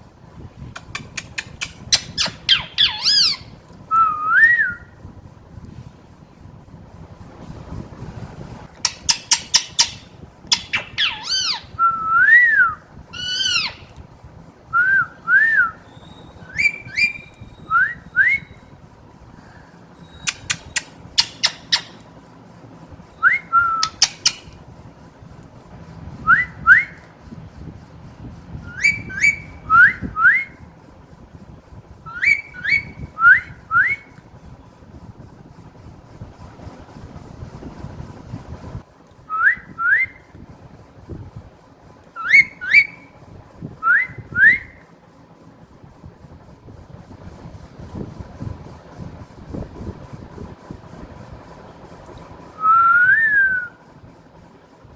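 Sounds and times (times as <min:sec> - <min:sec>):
parrot clicky calls: 0:00.8 - 0:03.4, 0:08.9 - 0:11.7, 0:13.2 - 0:13.9, 0:20.3 - 0:22.1, 0:23.8 - 0:24.6
parrot whistling rising notes: 0:01.9 - 0:04.9, 0:08.9 - 0:13.9, 0:14.8 - 0:18.6, 0:20.1 - 0:22.0, 0:23.2 - 0:24.5, 0:28.6 - 0:30.5, 0:32.1 - 0:34.1, 0:42.2 - 0:43.1.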